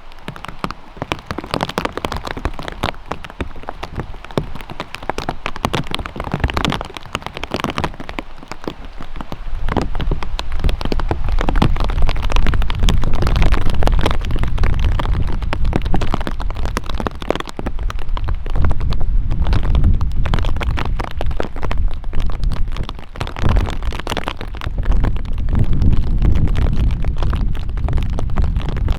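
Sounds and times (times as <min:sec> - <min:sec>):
rain drops ticking: 0:00.0 - 0:28.9
strong low rumble: 0:17.9 - 0:22.8, 0:24.5 - 0:28.9.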